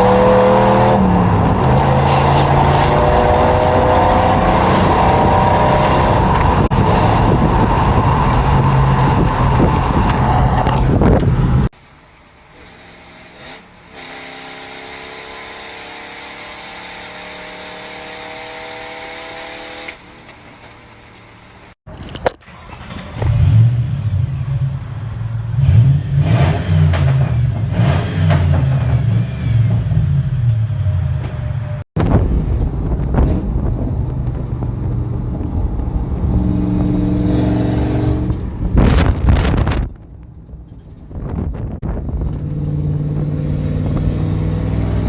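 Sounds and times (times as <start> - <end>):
loud truck exhaust running: 0.0 - 11.7
truck engine exhaust revving: 0.0 - 11.7, 23.2 - 45.0.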